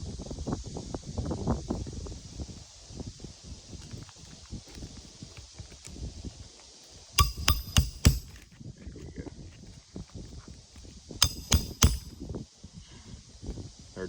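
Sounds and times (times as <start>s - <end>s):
hammer striking steel bar: 7.2s - 8.4s, 11.2s - 12.2s.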